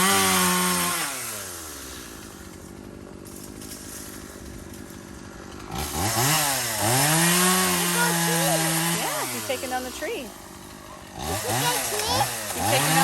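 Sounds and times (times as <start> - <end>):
chainsaw idling and revving: 0.0 - 13.0.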